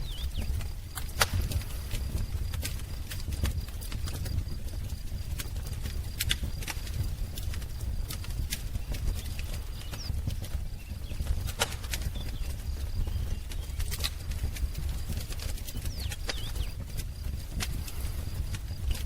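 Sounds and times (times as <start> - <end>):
faint bird chirps: 0.0 - 0.6, 8.8 - 14.2, 15.6 - 16.8
wood fire crackling and popping: 0.0 - 19.0.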